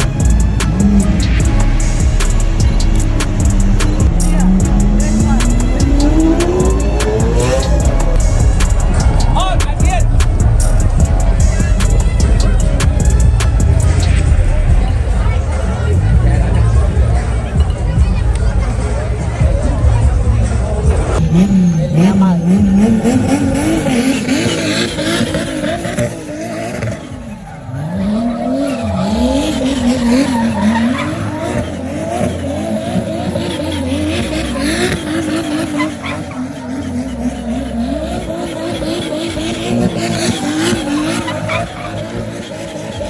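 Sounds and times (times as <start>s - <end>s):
car engines revving: 0.0s - 43.0s.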